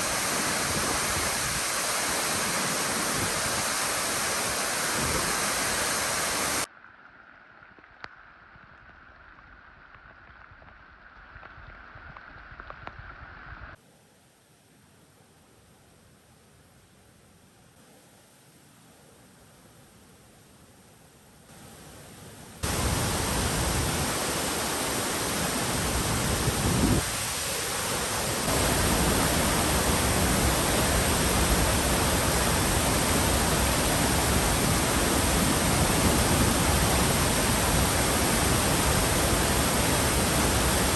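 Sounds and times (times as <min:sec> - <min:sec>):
waterfall roar: 0:00.0 - 0:06.7, 0:22.6 - 0:40.9.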